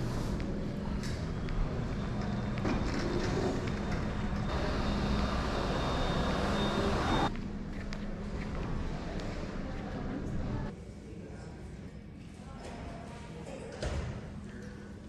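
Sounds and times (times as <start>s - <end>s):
thin high whine: 4.5s - 7.3s.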